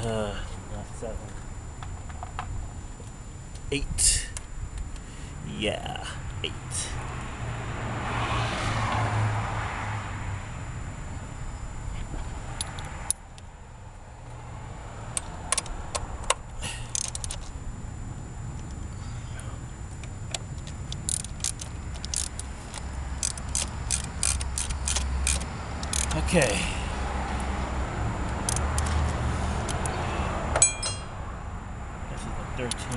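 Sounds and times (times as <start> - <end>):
low hum: 0.0 - 32.9
ratchet wrench clicking: 16.8 - 17.4, 20.9 - 26.2, 28.4 - 28.9
metal tools clinking: 30.6 - 31.1.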